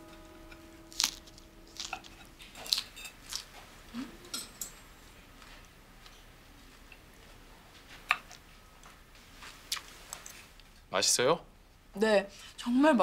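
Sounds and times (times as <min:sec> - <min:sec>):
person chewing crisp food: 0:00.9 - 0:04.2.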